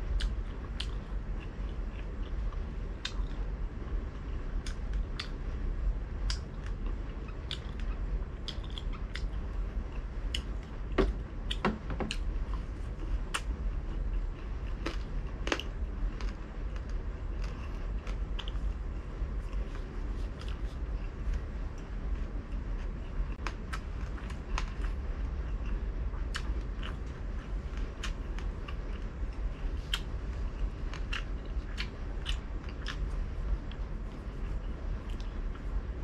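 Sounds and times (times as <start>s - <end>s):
person chewing crispy food: 0.0s - 5.4s, 6.2s - 35.8s
low steady hum: 0.0s - 36.0s
wet mouth clicks and smacks: 29.8s - 30.1s.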